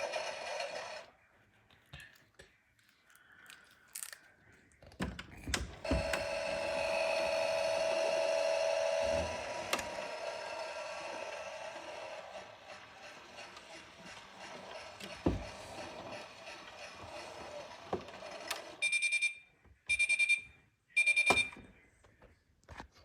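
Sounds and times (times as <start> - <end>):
small electric motor whirring: 0.0 - 1.1, 5.8 - 18.8.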